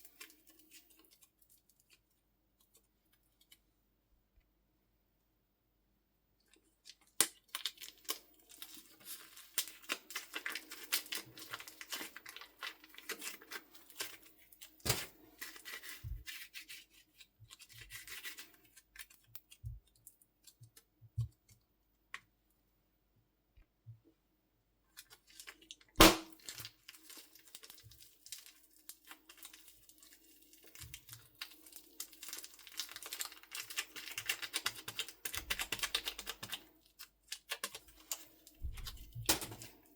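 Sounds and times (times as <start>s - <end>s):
loud snaps: 26.0s - 26.4s.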